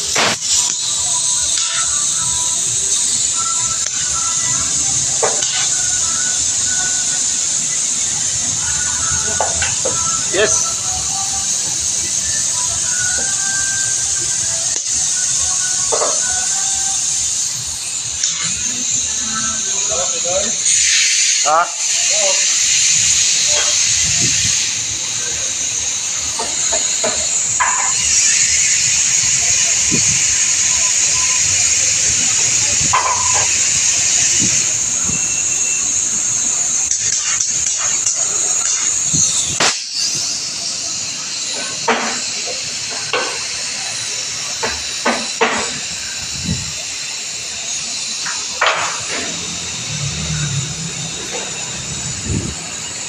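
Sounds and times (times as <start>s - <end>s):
faint voices: 0.0s - 39.6s
loud steady hiss: 0.0s - 53.0s.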